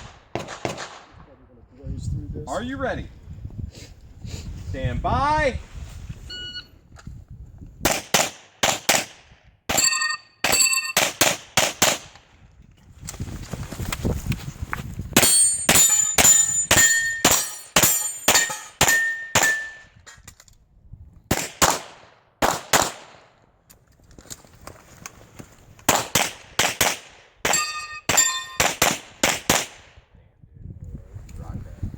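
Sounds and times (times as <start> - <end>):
rapid pistol shots: 0.0 - 1.1, 7.8 - 9.2, 10.4 - 12.1, 21.3 - 23.3, 25.9 - 30.0
steel targets ringing: 9.7 - 11.0, 15.2 - 19.9, 27.5 - 28.7.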